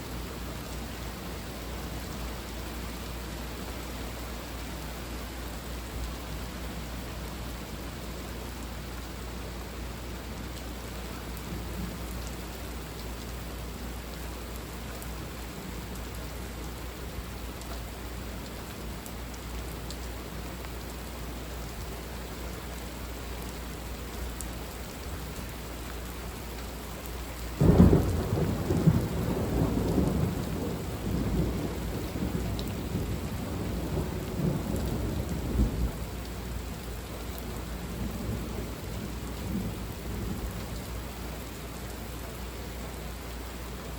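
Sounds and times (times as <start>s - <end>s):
steady rain falling: 0.0s - 43.9s
rumbling thunder: 27.6s - 36.0s.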